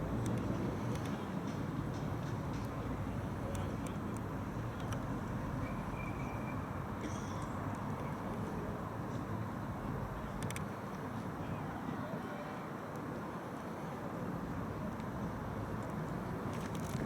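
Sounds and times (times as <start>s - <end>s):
street noise: 0.0s - 17.0s
crowd murmur: 7.0s - 17.0s
faint clicks: 10.3s - 11.0s.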